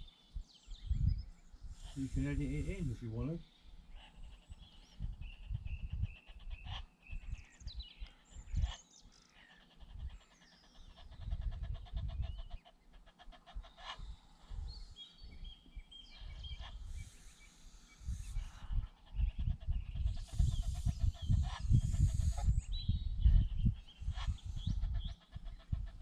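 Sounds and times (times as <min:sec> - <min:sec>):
birds chirping and calling: 0:00.0 - 0:26.0.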